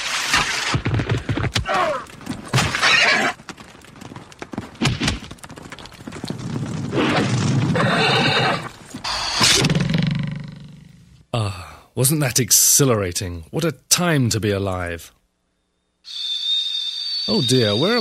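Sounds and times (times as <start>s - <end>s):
hooves clattering: 0.8s - 9.1s
horses neighing: 2.7s - 3.4s, 7.7s - 9.0s.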